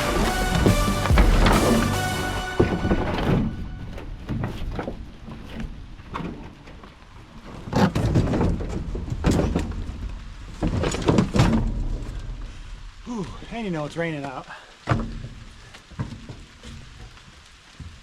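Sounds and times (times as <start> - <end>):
steady low rumble: 0.0 - 4.3
junk being dropped: 0.0 - 6.5, 7.7 - 12.9.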